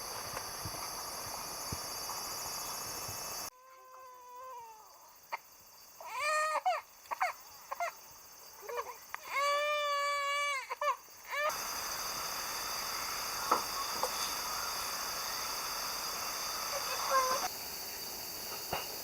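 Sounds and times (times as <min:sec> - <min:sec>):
insect hum: 0:00.0 - 0:19.0.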